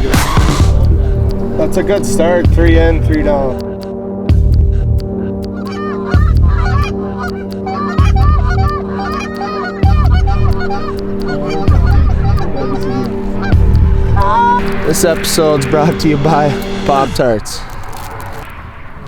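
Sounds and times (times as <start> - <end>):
music with heavy bass beat: 0.0 - 15.1
geese honking: 5.4 - 18.0.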